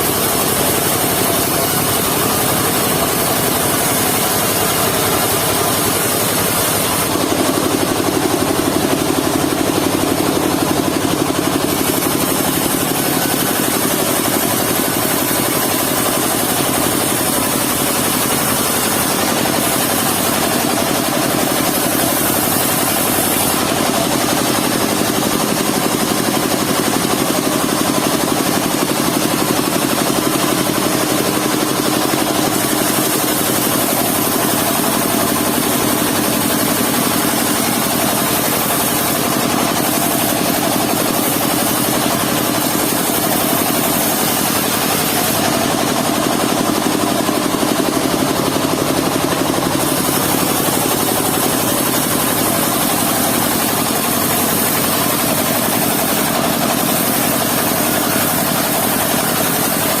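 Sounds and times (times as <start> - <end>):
sawmill engine running: 0.0 - 60.0.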